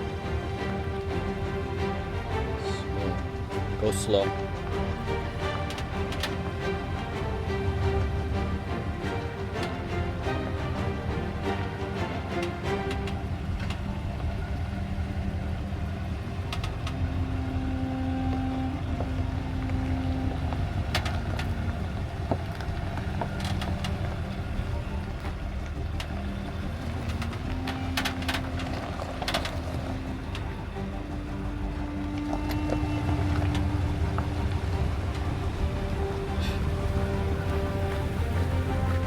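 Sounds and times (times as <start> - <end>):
off-road vehicle engine running: 0.0 - 39.0
sharp clicks and cracks: 5.4 - 6.4.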